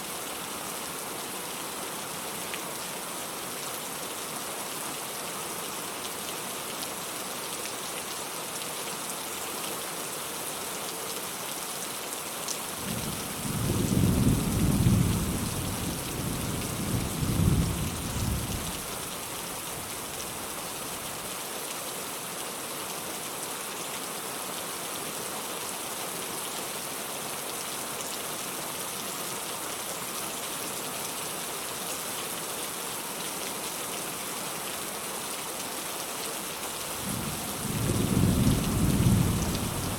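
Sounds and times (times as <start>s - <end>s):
steady rain: 0.0s - 39.9s
distant thunder rumbling: 37.1s - 39.9s.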